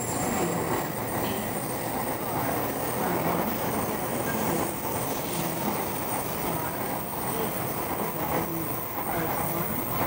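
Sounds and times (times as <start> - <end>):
bullet trains rumbling and hissing: 0.0 - 10.0.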